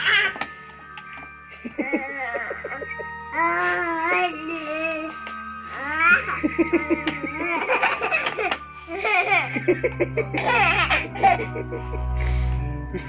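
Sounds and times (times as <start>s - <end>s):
background music: 0.0s - 13.0s
baby laughing and squealing: 1.8s - 9.5s.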